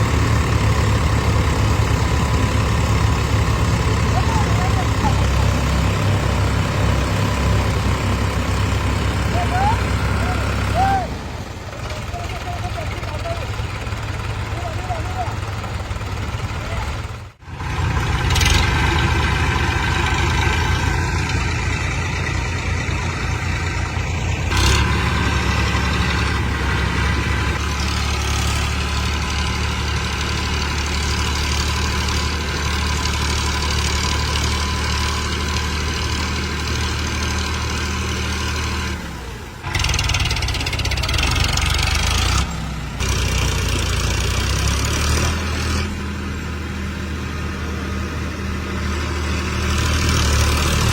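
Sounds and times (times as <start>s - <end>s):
tractor engines droning: 0.0s - 50.9s.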